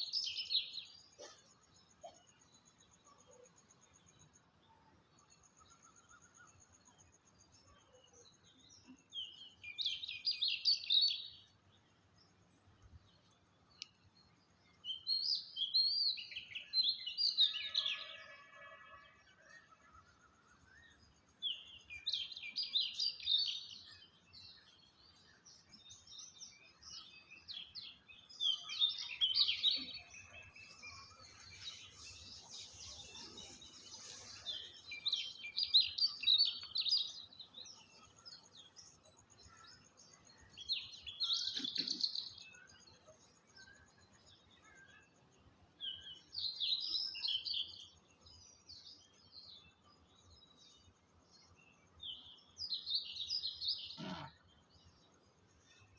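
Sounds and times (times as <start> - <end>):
bird chirping: 0.0 - 55.9
faint bird calls: 41.2 - 42.5, 53.7 - 54.5.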